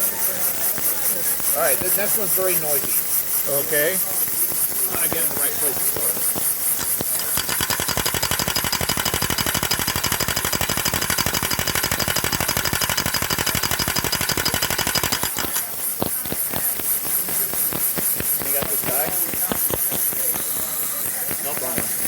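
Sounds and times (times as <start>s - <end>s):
model engine exhaust pops: 4.9s - 20.6s.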